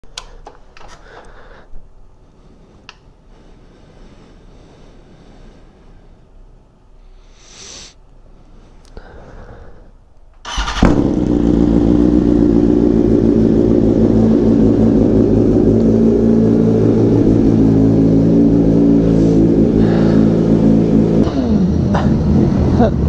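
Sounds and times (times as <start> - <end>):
motorcycle engine running: 10.5 - 22.9.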